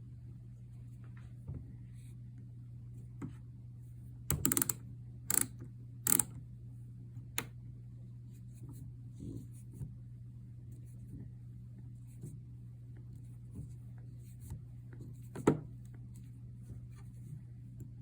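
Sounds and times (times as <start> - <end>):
steady low hum: 0.0 - 18.0
small hard parts clicking: 4.3 - 5.5.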